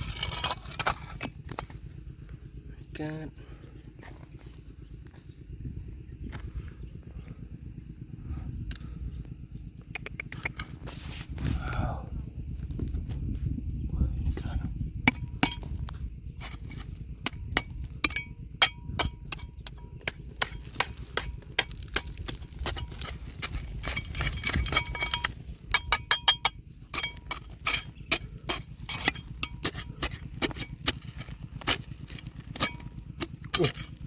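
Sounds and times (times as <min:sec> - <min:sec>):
low steady rumble: 0:00.0 - 0:34.0
stones clinking and knocking: 0:19.1 - 0:34.0.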